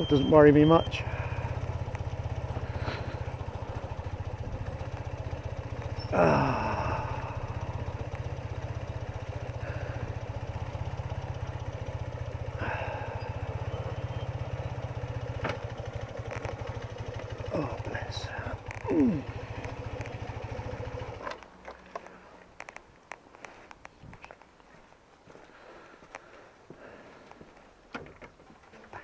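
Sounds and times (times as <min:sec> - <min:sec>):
motorcycle engine idling: 0:00.0 - 0:23.9.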